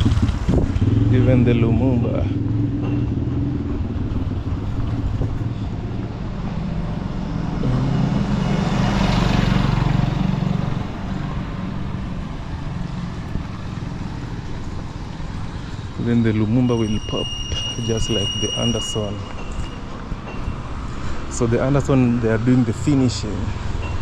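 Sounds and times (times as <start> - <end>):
motor vehicle passing: 0.0 - 16.0
street traffic rumble: 0.0 - 24.0.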